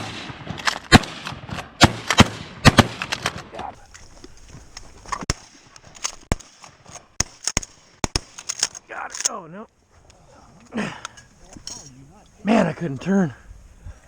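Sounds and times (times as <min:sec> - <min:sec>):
shotgun blasts: 0:00.0 - 0:03.7, 0:06.2 - 0:08.6.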